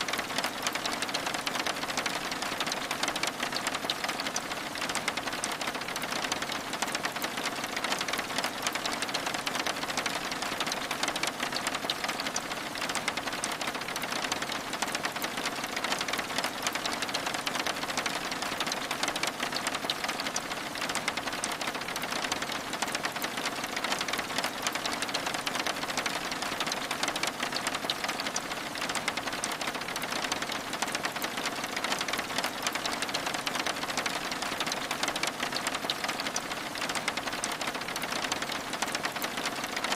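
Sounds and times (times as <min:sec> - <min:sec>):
rain pattering on window glass: 0:00.0 - 0:39.9.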